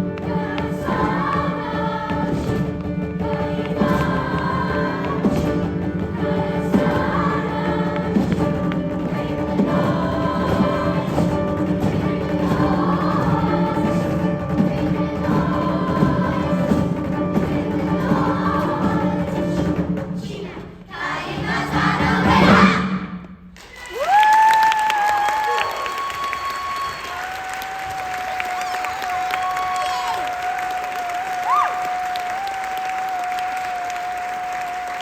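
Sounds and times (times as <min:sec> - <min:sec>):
choir singing sustained chords: 0:00.0 - 0:23.0
audience cheering: 0:23.6 - 0:35.0.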